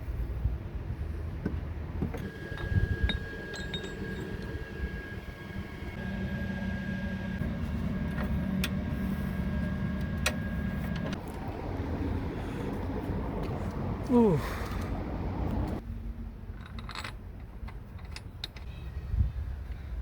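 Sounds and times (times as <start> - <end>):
car engine idling with whine: 2.0 - 14.4.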